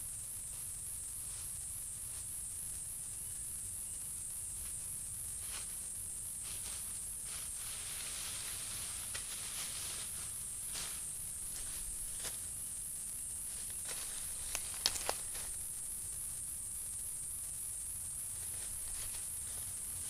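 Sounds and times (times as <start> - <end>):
high-pitched insect chorus: 0.0 - 20.0
light rustling: 13.5 - 15.7.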